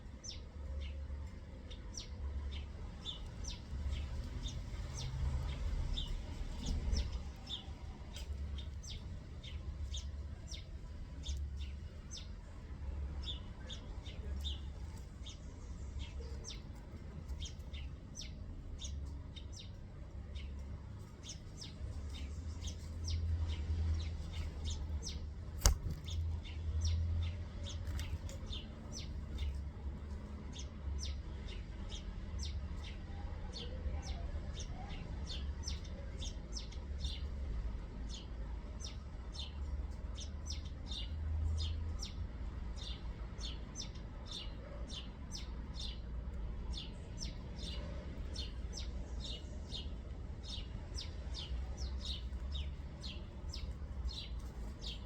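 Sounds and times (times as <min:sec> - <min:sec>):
small birds chirping: 0:00.0 - 0:55.0
sharp click: 0:25.6 - 0:26.2.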